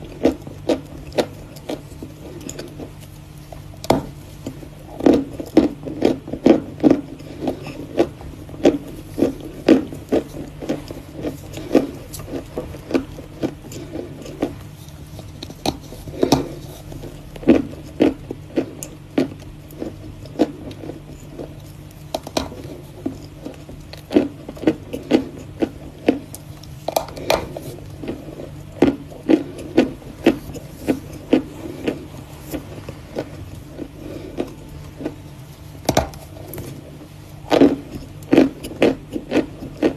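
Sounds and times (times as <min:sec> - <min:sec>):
chalk crunching and chewing: 0:00.0 - 0:39.9
faint steady hum: 0:00.0 - 0:39.9.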